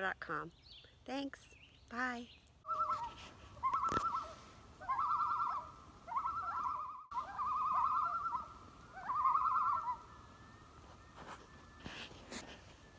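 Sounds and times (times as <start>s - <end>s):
loon tremolo calls: 2.7s - 12.1s.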